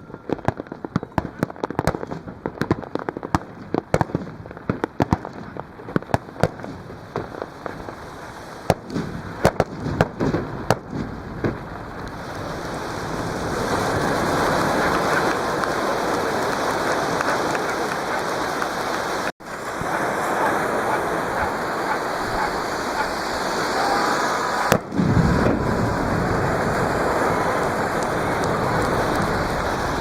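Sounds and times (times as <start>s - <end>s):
fireworks bangs and crackles: 0.0s - 30.0s
steady rushing noise: 11.6s - 30.0s.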